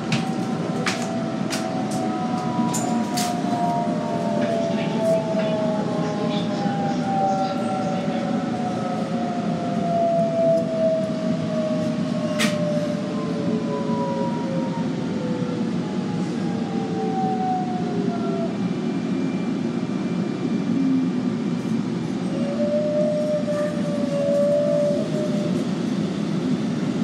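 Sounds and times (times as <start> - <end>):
train wheels rumbling: 0.0 - 13.3.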